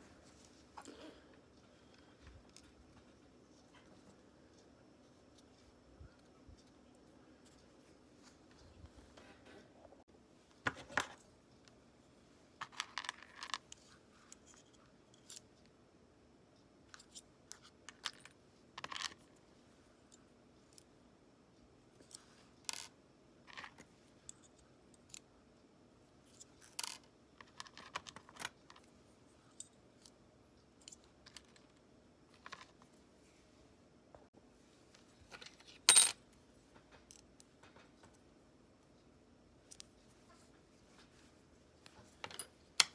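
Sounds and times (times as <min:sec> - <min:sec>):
metal parts clicking and clinking: 0:35.3 - 0:36.2.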